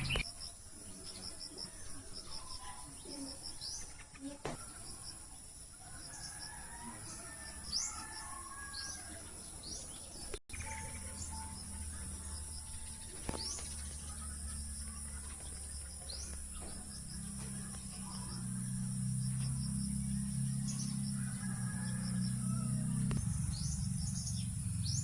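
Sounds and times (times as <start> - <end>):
birds chirping: 0.0 - 25.0
high-pitched insect drone: 10.5 - 25.0.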